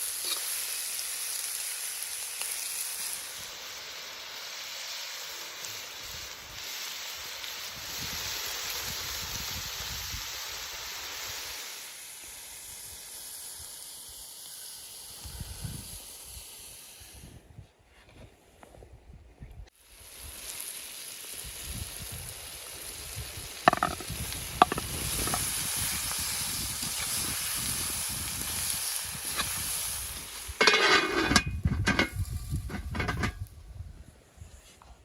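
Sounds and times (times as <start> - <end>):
food sizzling in hot fat: 0.0 - 17.3, 19.7 - 33.6
clattering and scraping: 23.7 - 25.4, 30.6 - 33.4.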